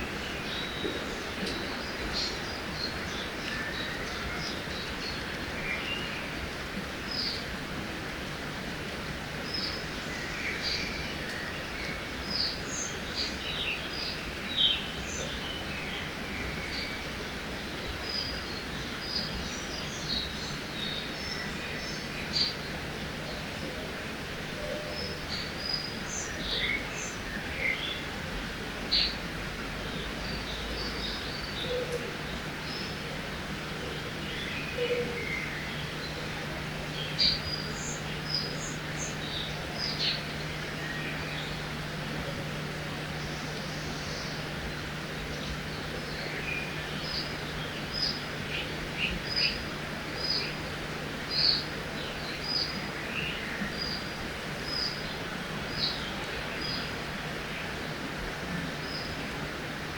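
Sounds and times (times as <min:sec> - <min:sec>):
river water rushing: 0:00.0 - 0:59.9
songbirds chirping: 0:00.0 - 0:59.9
small birds chirping: 0:33.9 - 0:42.1, 0:42.8 - 0:57.8.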